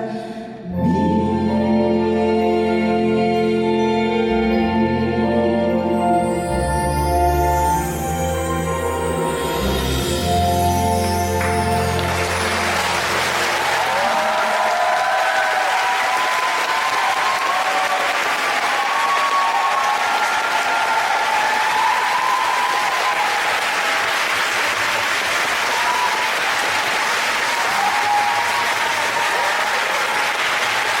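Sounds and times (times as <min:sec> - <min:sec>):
audience applauding: 0:10.9 - 0:31.0.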